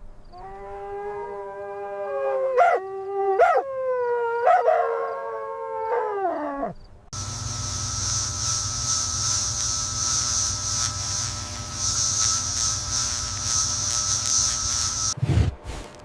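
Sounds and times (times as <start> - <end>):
dog howling: 0.4 - 6.8.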